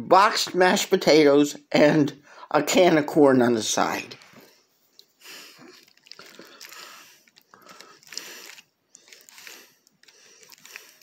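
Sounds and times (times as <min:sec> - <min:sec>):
person chewing food: 0:04.4 - 0:11.0.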